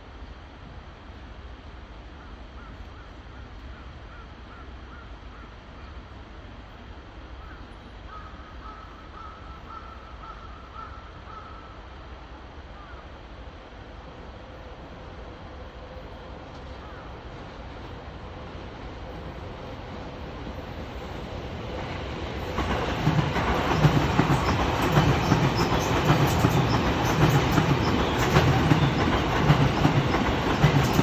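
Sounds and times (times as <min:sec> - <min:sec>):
crow cawing: 0:08.1 - 0:11.7.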